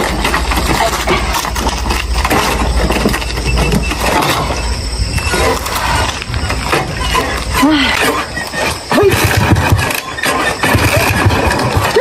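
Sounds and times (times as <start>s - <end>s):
motorcycle engine sputtering: 0.0s - 12.0s.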